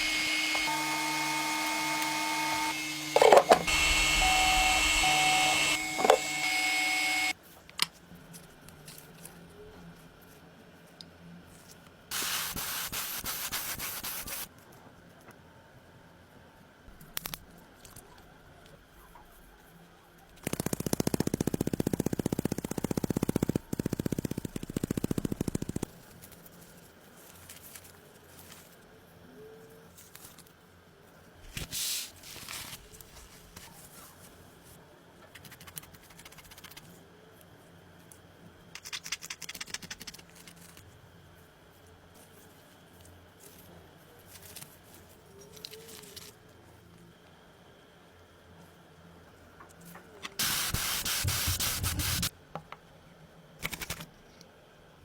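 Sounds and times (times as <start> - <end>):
power tool hammering: 0.0 - 7.3
scraping and handling sounds: 0.0 - 9.4.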